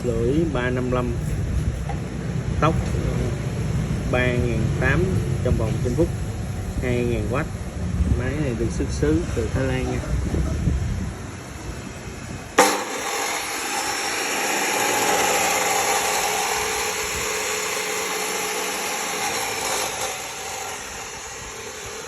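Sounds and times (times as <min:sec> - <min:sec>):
cut-off saw motor whine: 0:12.6 - 0:22.0.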